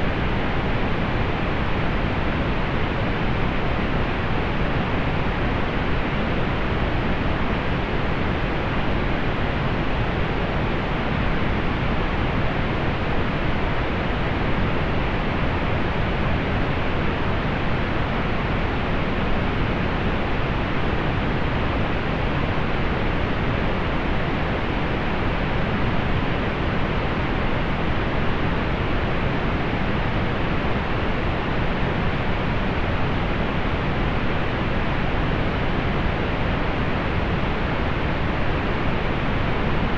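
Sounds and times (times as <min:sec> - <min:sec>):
soft pink noise hiss: 0:00.0 - 0:39.9.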